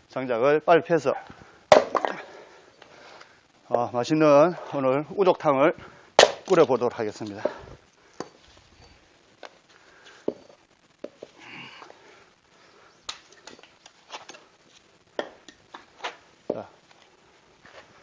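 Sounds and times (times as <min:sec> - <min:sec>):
axe splitting firewood: 0:01.7 - 0:02.4, 0:06.2 - 0:07.6, 0:15.1 - 0:16.6.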